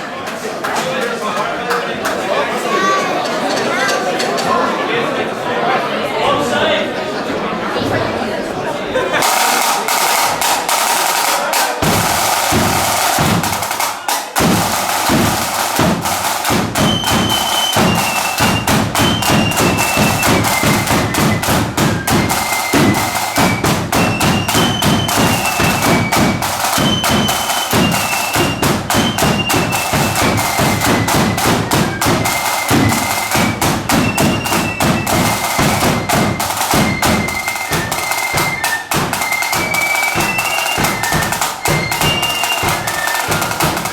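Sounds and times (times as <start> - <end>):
high wind instrument melody: 9.2 - 43.9
snare and bass drums: 9.2 - 43.9.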